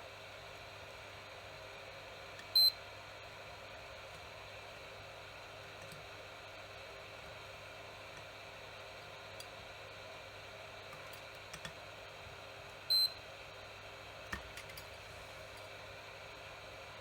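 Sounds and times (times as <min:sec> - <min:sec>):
multimeter beep: 0:02.6 - 0:02.8, 0:12.9 - 0:13.2.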